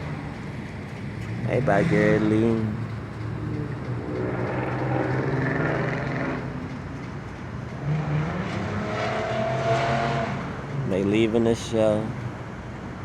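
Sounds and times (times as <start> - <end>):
car engine revving: 1.4 - 6.8, 7.8 - 10.6.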